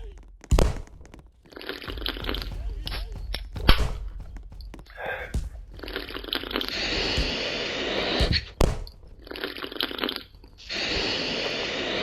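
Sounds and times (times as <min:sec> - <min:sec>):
rustling: 0:00.0 - 0:12.0
person chewing crunchy food: 0:01.2 - 0:02.4, 0:09.2 - 0:10.8.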